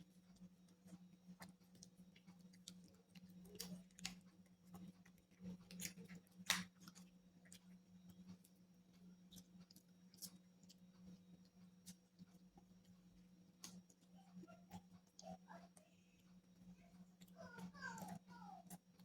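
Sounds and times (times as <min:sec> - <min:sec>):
chewing and mouth clicks: 0:00.0 - 0:19.0.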